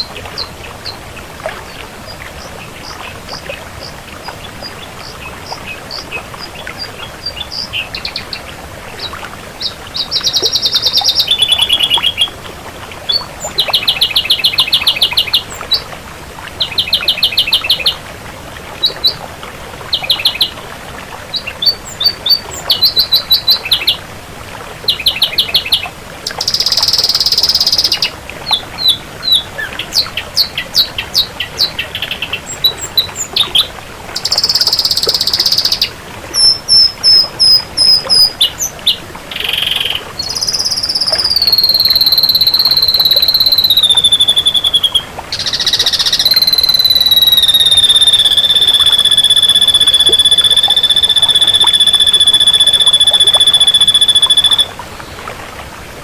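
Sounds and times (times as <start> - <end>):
bird singing trilled phrases: 4.6 - 12.4, 13.1 - 15.9, 16.6 - 18.0, 19.9 - 20.6, 21.3 - 24.0, 24.9 - 54.7
harsh hissy bird notes: 34.2 - 54.7.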